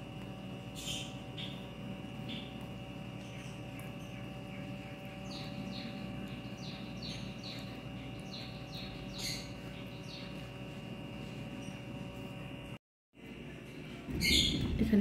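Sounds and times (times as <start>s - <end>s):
background hum: 0.0s - 15.0s
bird chirping: 0.7s - 11.9s.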